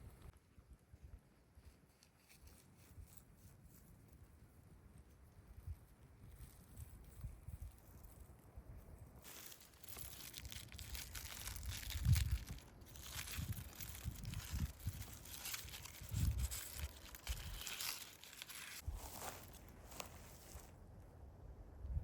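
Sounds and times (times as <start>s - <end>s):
crinkling and rustling handling noise: 9.2s - 20.8s.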